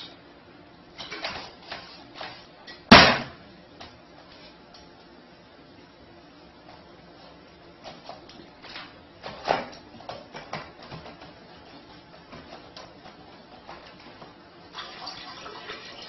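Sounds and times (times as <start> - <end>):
toilet flushing: 14.7 - 16.0.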